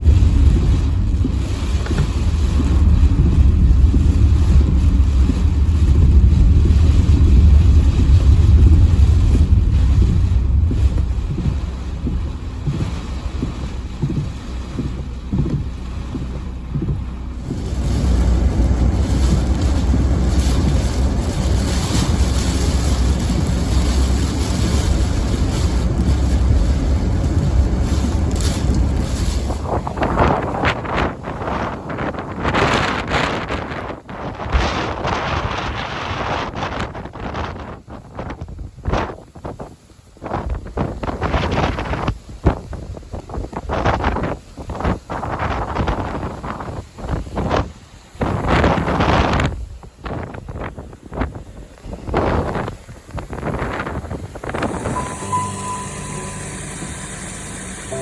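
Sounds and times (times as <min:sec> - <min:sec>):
wind buffeting microphone: 0:00.0 - 0:55.5
rushing hiss of wind: 0:16.7 - 0:58.0.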